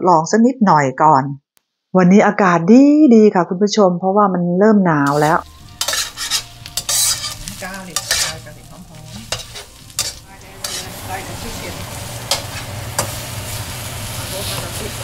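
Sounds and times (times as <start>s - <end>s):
utensil scraping a pan: 5.0s - 14.8s
mushrooms sizzling in a pan: 5.0s - 15.0s
low hum: 7.4s - 14.3s.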